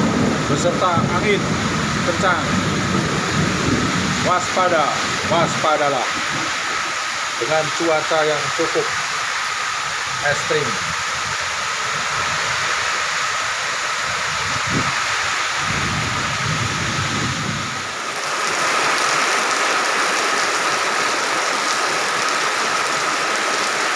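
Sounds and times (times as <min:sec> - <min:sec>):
low rumble of thunder: 0:00.0 - 0:06.6, 0:15.6 - 0:18.0
heavy rain pouring: 0:00.0 - 0:23.9.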